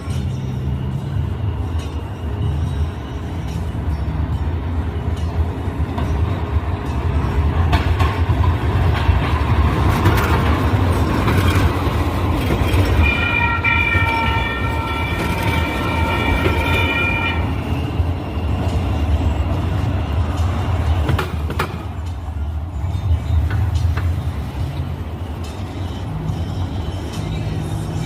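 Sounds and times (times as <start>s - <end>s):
light rail train rumbling: 0.0s - 28.0s
train clicks: 0.0s - 28.0s
train horn blast: 12.8s - 17.9s.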